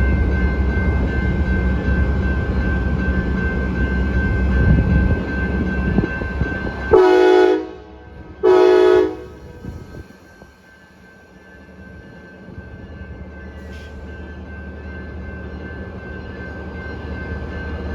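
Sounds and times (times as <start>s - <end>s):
train rumbling past: 0.0s - 17.9s
locomotive horn blasts: 6.9s - 9.4s.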